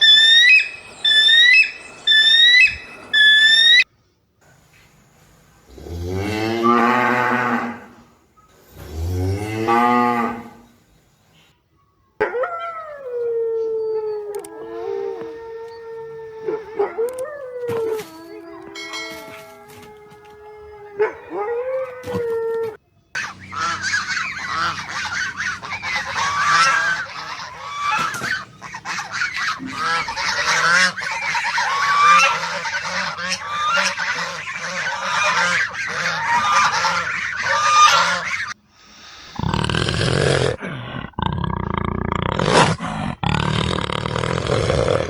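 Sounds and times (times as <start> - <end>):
flock of birds calling: 0.0 - 3.8, 23.2 - 38.6.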